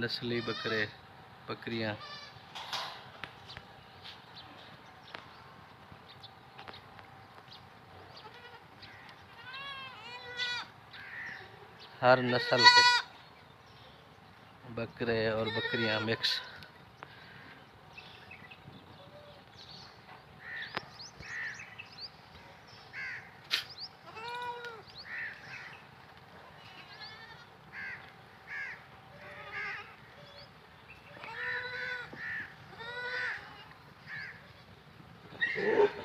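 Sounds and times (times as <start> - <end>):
goats bleating: 8.2 - 11.6, 12.2 - 13.2, 15.3 - 16.7, 24.0 - 25.7, 26.5 - 30.3, 31.0 - 34.5.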